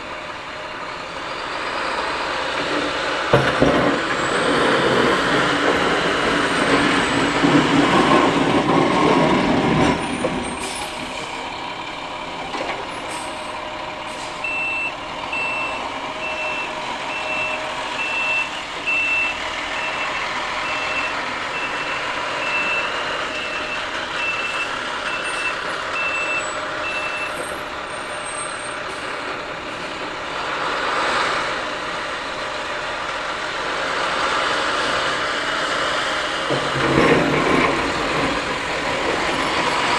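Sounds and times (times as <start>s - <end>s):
truck reversing alarm beeping: 0.0s - 31.5s
truck engine running: 0.0s - 39.9s.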